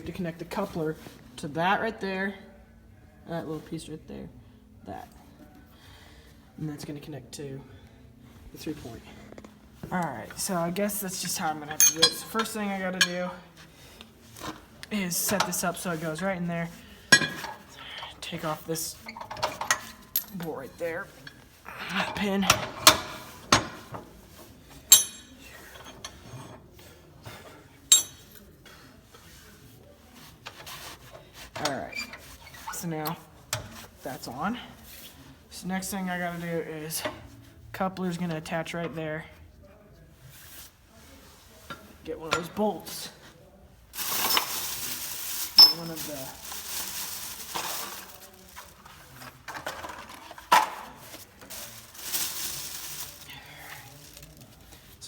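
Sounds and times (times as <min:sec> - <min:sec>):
metallic clinks: 0:11.7 - 0:13.4, 0:24.9 - 0:25.6, 0:27.9 - 0:28.4.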